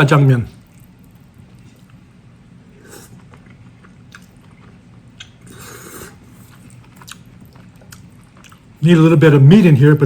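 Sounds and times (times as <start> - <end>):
person chewing noodles: 0.6 - 8.8
wet mouth clicks: 5.2 - 5.6.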